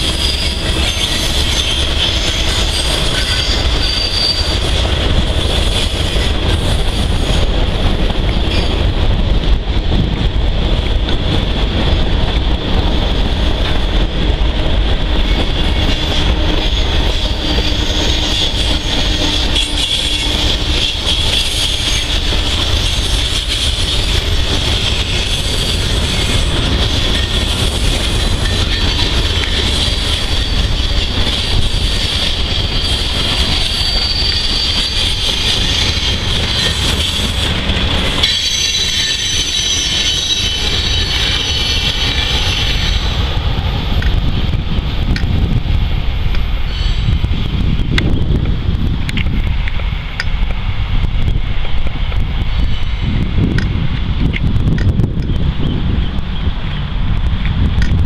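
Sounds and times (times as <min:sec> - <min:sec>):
high-pitched wheel squeal: 0:00.0 - 0:04.8, 0:15.8 - 0:24.1, 0:24.8 - 0:37.5, 0:38.2 - 0:43.2, 0:46.6 - 0:47.2
train wheels rumbling on rails: 0:00.0 - 0:58.0.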